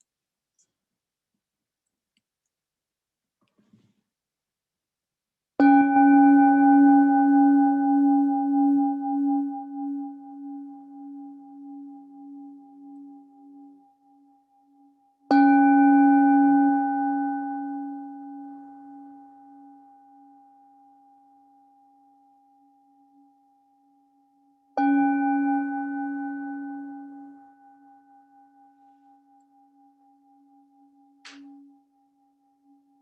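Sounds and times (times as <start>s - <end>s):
meditation bell ringing: 5.6s - 33.0s.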